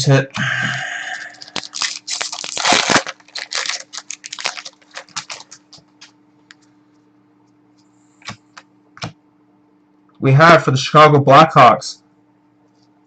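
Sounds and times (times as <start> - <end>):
wrapper tearing and crinkling: 1.2 - 5.8.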